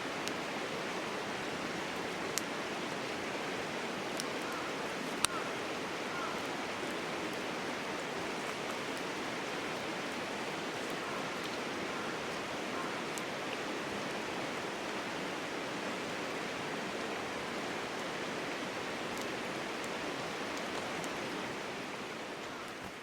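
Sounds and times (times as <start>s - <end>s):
river water flowing: 0.0s - 23.0s
faint ticks: 4.1s - 5.5s.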